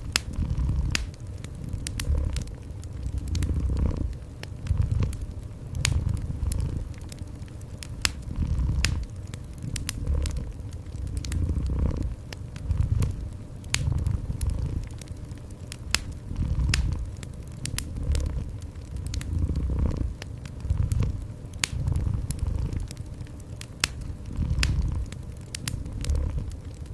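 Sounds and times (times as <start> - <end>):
cat purring: 0.0 - 7.2, 8.0 - 15.2, 15.9 - 23.0, 23.8 - 26.6
wood fire crackling: 0.0 - 26.9.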